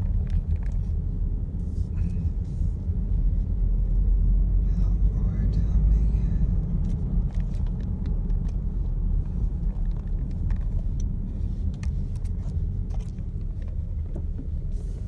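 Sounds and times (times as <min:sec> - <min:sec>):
light clicks and rattles: 0:00.0 - 0:01.0, 0:06.8 - 0:15.0
road and engine rumble in car: 0:00.0 - 0:15.0.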